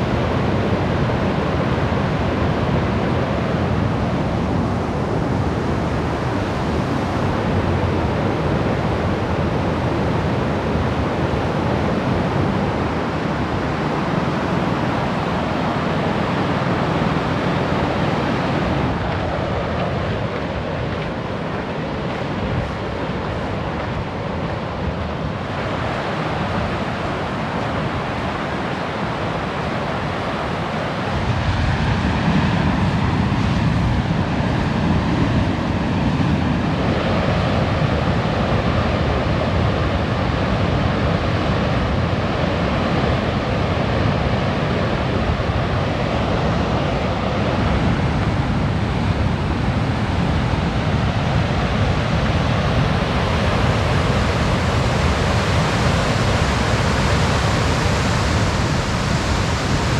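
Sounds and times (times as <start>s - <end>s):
waterfall rushing: 49.3s - 59.9s.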